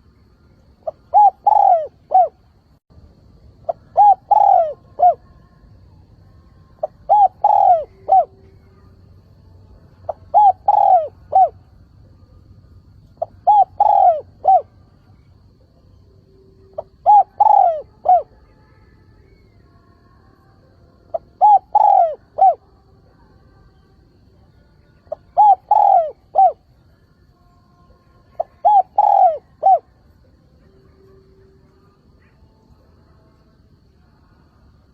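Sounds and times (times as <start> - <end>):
dove cooing: 0.8 - 2.4, 3.6 - 5.4, 6.7 - 8.8, 10.1 - 11.7, 13.1 - 15.0, 16.7 - 18.4, 21.1 - 22.6, 25.1 - 26.7, 28.3 - 30.0.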